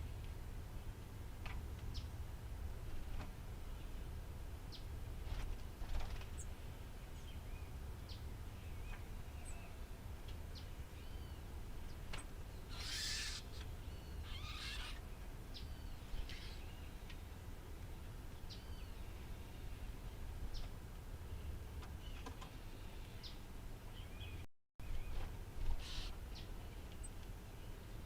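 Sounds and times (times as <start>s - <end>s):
birds chirping and whistling: 12.6s - 15.0s, 15.6s - 16.9s, 25.8s - 26.5s
harsh rasping bird calls: 12.6s - 16.8s, 25.8s - 26.2s.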